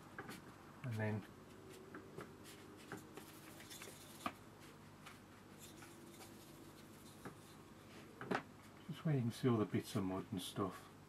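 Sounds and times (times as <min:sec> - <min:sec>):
paintbrush scratching on paper: 0:01.5 - 0:04.8, 0:05.5 - 0:08.0.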